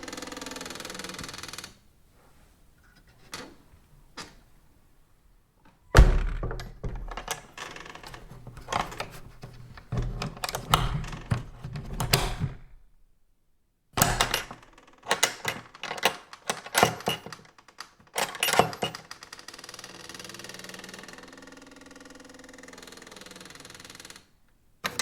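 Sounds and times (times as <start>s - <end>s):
door latch clicking: 5.9s - 12.9s, 14.0s - 17.4s
wooden door creaking and knocking: 5.9s - 13.0s, 14.0s - 19.5s.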